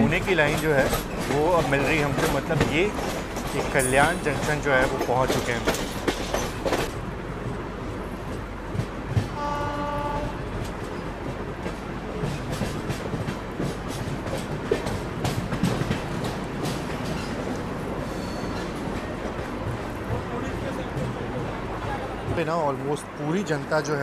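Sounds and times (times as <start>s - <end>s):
train wheels clattering: 0.0s - 7.0s, 8.2s - 22.6s
train horn: 9.3s - 10.6s.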